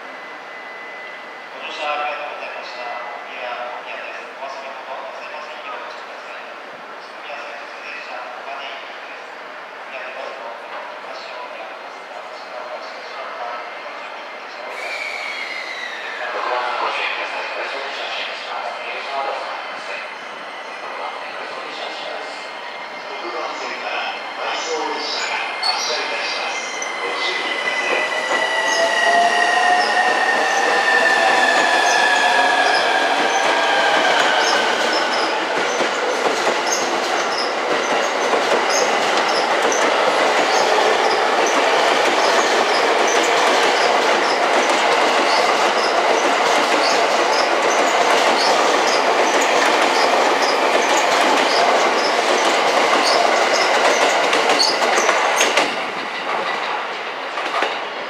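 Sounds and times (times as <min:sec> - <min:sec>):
train wheels rushing on rail: 0:14.4 - 0:58.0.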